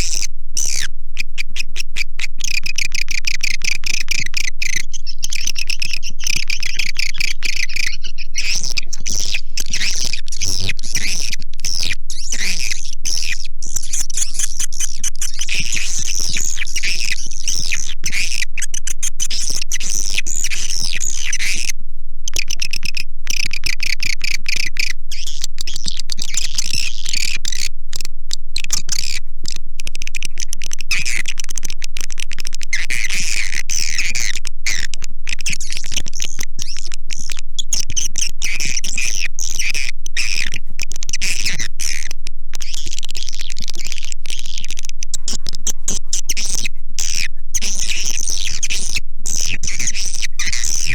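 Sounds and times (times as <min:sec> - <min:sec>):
swiftlets twittering: 0:00.0 - 0:21.0.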